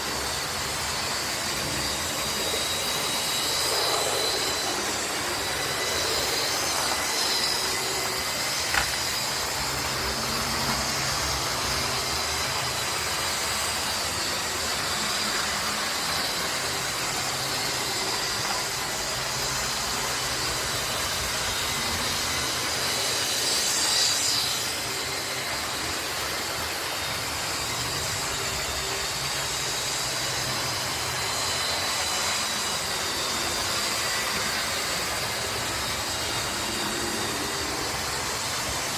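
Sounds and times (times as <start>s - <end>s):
high-pitched squeal: 0.0s - 38.9s
model train motors on track: 0.0s - 38.9s.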